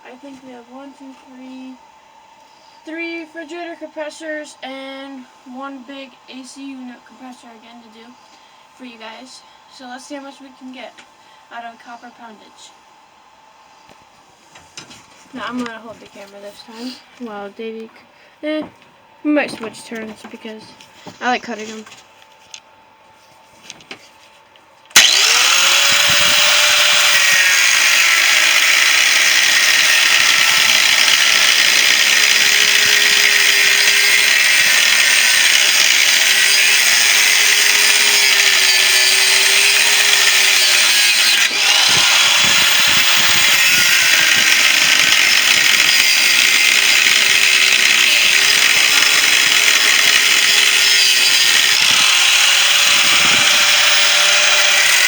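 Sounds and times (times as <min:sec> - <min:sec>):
power tool cutting metal: 0:25.0 - 0:55.0.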